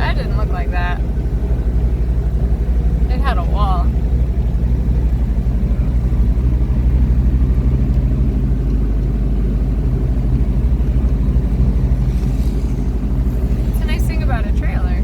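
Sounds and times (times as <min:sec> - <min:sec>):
car engine rumble: 0:00.0 - 0:15.0
road noise: 0:00.0 - 0:15.0.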